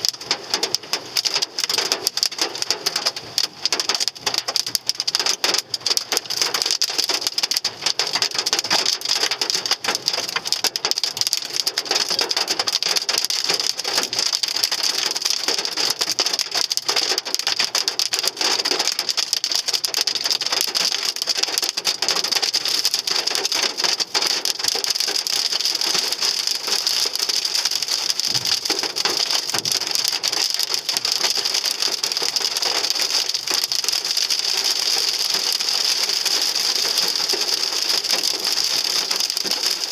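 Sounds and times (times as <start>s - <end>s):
hail pelting car metal: 0.0s - 39.9s
rain hiss: 20.0s - 39.9s.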